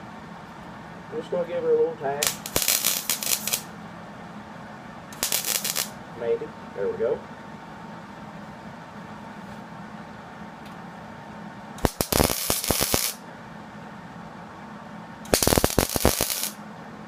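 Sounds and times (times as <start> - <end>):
welder crackling bursts: 2.2 - 3.7, 5.1 - 6.0, 11.8 - 13.2, 15.3 - 16.6.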